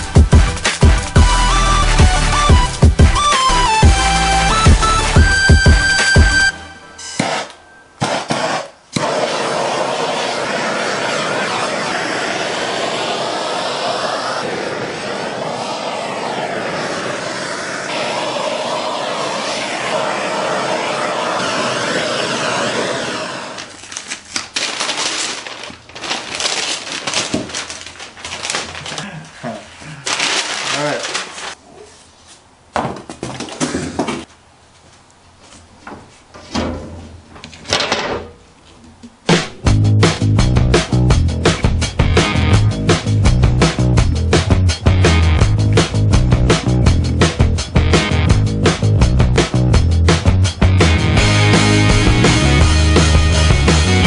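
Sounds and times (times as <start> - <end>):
propane torch hissing: 8.9 - 23.9.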